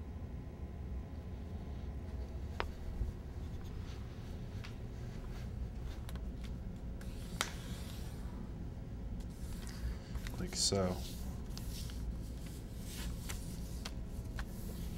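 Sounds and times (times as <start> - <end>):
low room hum: 0.0 - 14.9
paper rustling and crinkling: 9.2 - 14.9.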